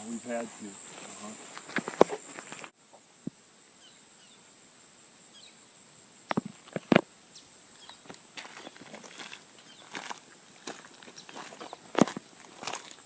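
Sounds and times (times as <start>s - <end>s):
high insect buzz: 0.0s - 13.0s
faint bird chirps: 3.8s - 4.5s, 5.3s - 5.7s, 7.3s - 8.8s, 9.6s - 10.0s.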